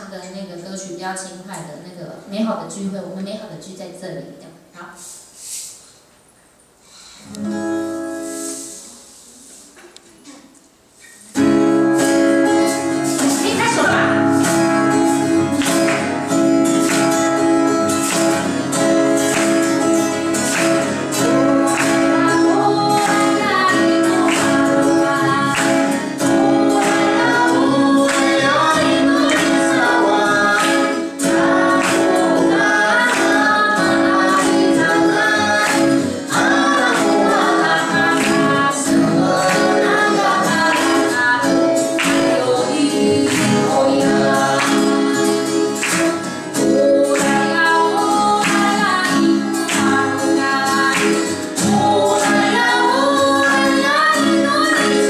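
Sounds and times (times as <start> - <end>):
strummed acoustic guitar: 7.2 - 9.2, 11.0 - 55.0
woman singing: 21.2 - 45.4, 46.6 - 55.0.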